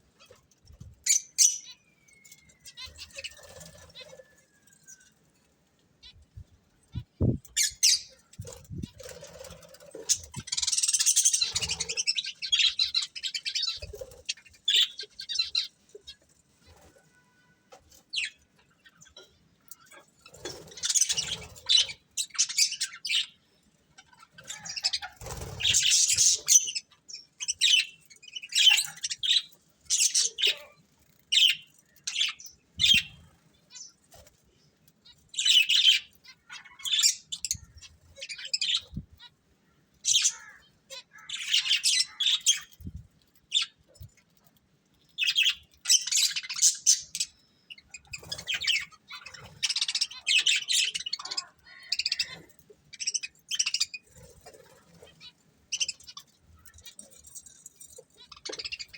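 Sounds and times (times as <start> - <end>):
budgerigars chirping: 7.6 - 15.7, 24.0 - 33.9, 35.4 - 39.0, 40.1 - 42.8, 45.2 - 57.3.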